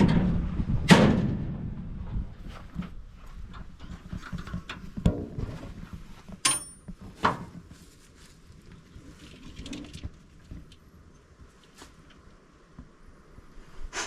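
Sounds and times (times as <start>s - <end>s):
metal clanks and knocks: 2.7s - 7.6s.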